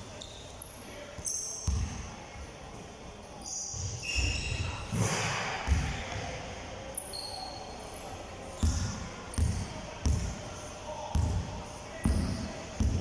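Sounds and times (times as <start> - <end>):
sneakers squeaking on court: 0.1 - 2.1, 3.4 - 4.9, 7.0 - 7.9, 8.5 - 10.3
basketballs bouncing on gym floor: 1.6 - 2.0, 5.6 - 6.2, 8.6 - 10.4, 11.1 - 13.0.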